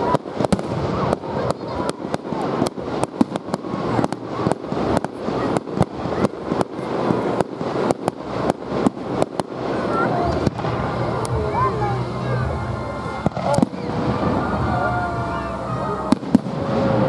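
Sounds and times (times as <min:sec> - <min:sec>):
fireworks bangs and cracks: 0:00.0 - 0:17.0
continuous rumble: 0:08.3 - 0:17.0.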